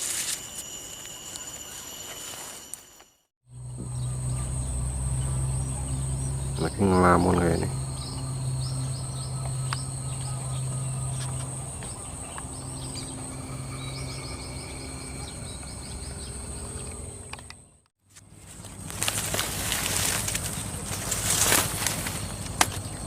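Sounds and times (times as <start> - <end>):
insect drone: 0.0 - 23.0
low hum: 3.5 - 23.0
bird chirps: 3.6 - 17.9.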